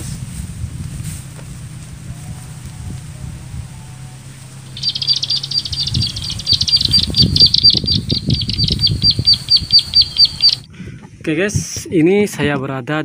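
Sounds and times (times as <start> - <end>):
low thumps and rumble: 0.0 - 10.6
bird calling short high notes: 3.6 - 10.6.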